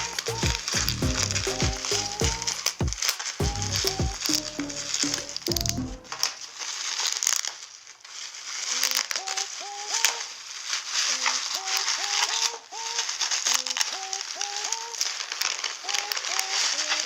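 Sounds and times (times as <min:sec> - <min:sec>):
packaging rustling and crinkling: 0:00.0 - 0:05.4, 0:06.1 - 0:17.0
background music with sliding notes: 0:00.0 - 0:06.2.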